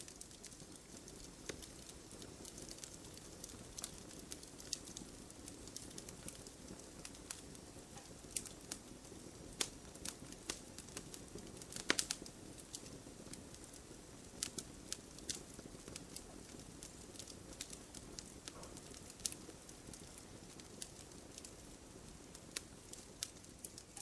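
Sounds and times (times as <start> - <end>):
campfire pops and snaps: 0.0 - 24.0
flames rushing: 0.0 - 24.0.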